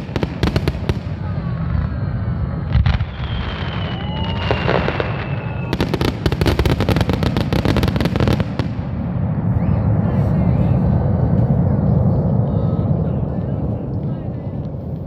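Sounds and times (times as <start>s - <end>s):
firework crackling reports: 0.0s - 15.0s
steady low rumble: 0.0s - 15.0s
firework falling whistle: 1.9s - 6.6s.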